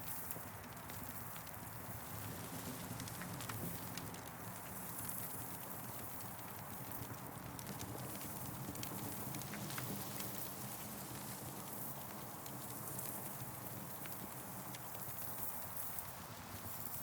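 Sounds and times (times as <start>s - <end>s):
campfire crackling: 0.3s - 17.0s.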